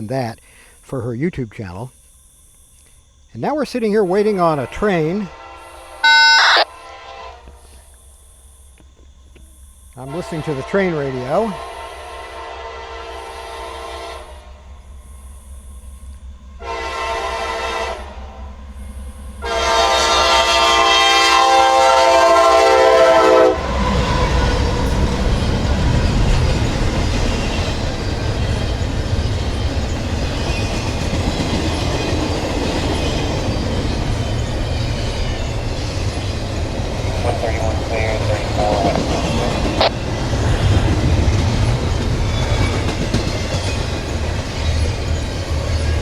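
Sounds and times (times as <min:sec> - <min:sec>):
train rumble: 0:03.4 - 0:46.0
locomotive air horn blasts: 0:05.2 - 0:07.8, 0:10.0 - 0:14.5, 0:16.6 - 0:18.3, 0:19.4 - 0:24.4
wheels clattering on rails: 0:23.6 - 0:46.0.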